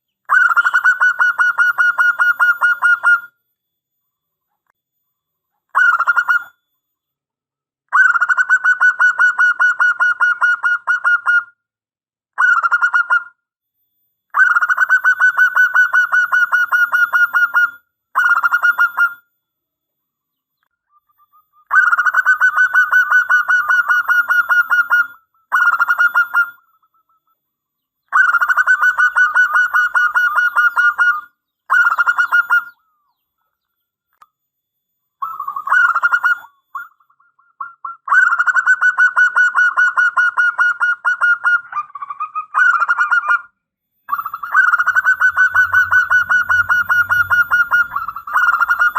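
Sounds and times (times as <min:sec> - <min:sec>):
dove cooing: 0:28.1 - 0:33.0, 0:35.2 - 0:43.2, 0:44.1 - 0:48.9.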